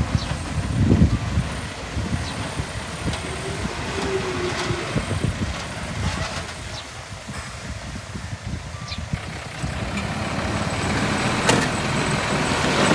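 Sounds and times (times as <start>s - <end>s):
knocks and clanks: 0.0s - 9.2s
diesel engine of heavy machinery: 0.0s - 12.9s.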